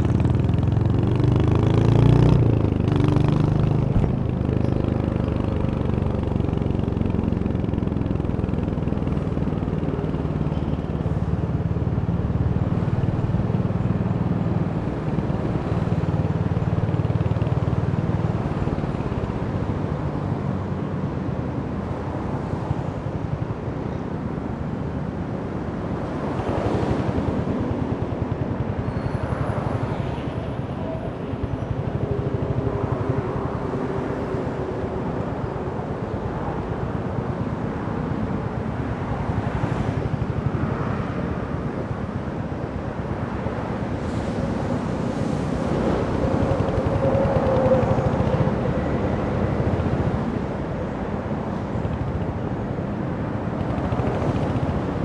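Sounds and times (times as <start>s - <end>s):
motorcycle engine running: 0.0s - 20.5s
road and wind noise: 0.0s - 55.0s.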